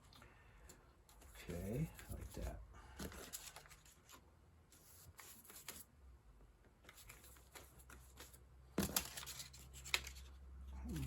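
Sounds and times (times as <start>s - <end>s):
paper rustling and crinkling: 1.1s - 4.2s, 6.8s - 11.0s.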